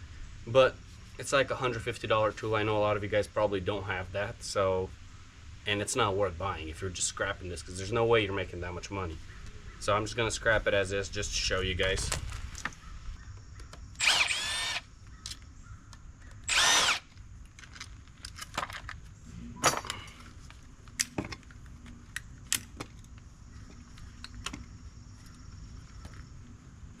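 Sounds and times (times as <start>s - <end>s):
power drill running: 14.0s - 14.9s, 16.4s - 17.1s
clicks and knocks of parts: 15.2s - 23.2s.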